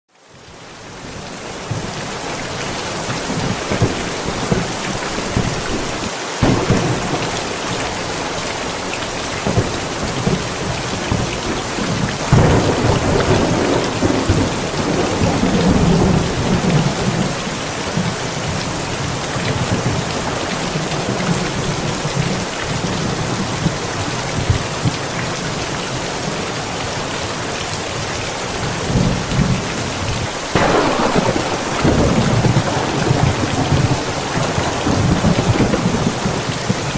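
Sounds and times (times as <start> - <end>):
steady rain falling: 0.1 - 36.9
thunder rumbling: 1.7 - 23.8, 30.5 - 36.9.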